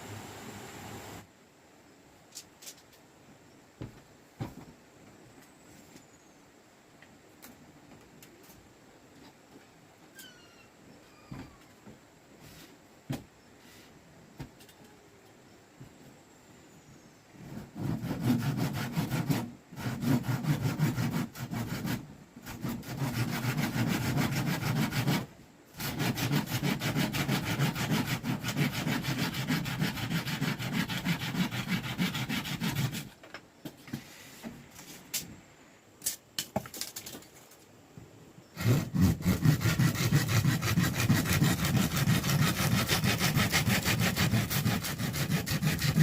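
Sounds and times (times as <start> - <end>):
hand saw cutting bamboo: 17.8 - 33.2, 38.6 - 46.0.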